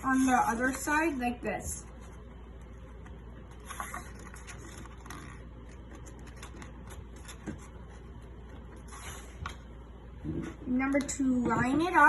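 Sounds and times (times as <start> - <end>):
paper being folded: 1.9 - 9.4.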